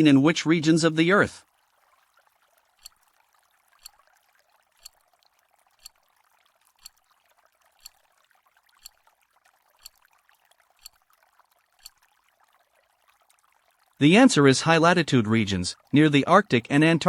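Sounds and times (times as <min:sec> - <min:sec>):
timer ticking: 0:02.8 - 0:03.0, 0:03.8 - 0:04.0, 0:04.8 - 0:05.0, 0:05.8 - 0:06.0, 0:06.7 - 0:07.0, 0:07.8 - 0:08.0, 0:08.8 - 0:09.0, 0:09.8 - 0:10.0, 0:10.8 - 0:11.1.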